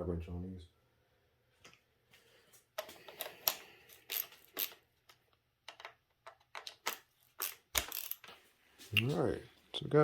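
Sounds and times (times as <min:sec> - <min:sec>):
small tools clicking and clattering: 0:02.8 - 0:08.4.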